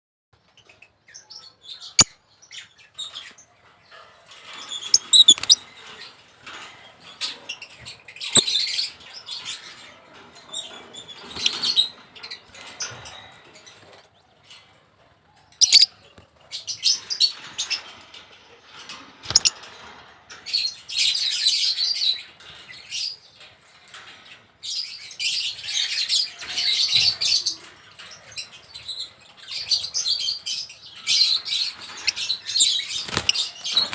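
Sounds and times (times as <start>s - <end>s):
small birds chirping: 0.4s - 33.9s
wing flutters: 32.9s - 33.9s.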